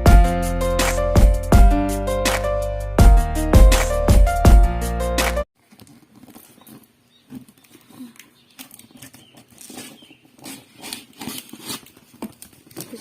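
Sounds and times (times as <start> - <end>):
parcel clicks and rustles: 5.6 - 13.0.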